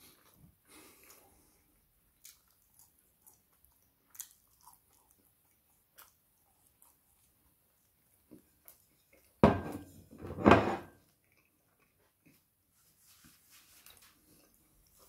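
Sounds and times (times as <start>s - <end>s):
chewing and lip-smacking: 0.1s - 9.4s, 11.0s - 12.5s.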